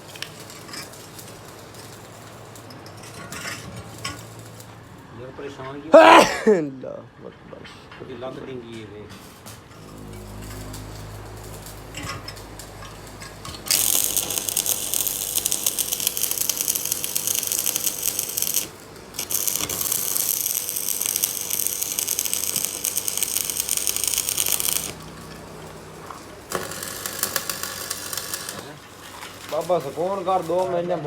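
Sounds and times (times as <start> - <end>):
rapid mechanical clicking rattle: 13.6 - 25.0.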